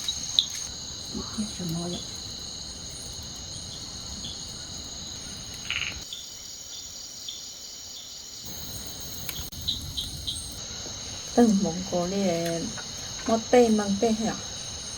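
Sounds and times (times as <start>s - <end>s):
insects trilling: 0.0s - 14.9s
faint clicks: 4.2s - 6.1s, 9.2s - 10.2s.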